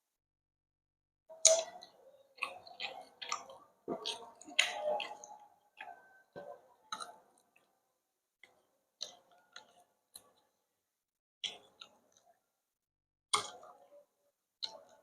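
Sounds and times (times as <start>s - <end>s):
person chewing food: 1.4s - 7.7s, 8.4s - 10.5s.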